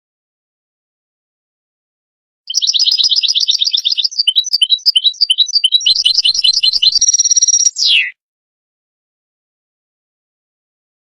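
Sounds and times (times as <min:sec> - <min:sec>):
goldfinch twittering song: 0:02.5 - 0:08.1.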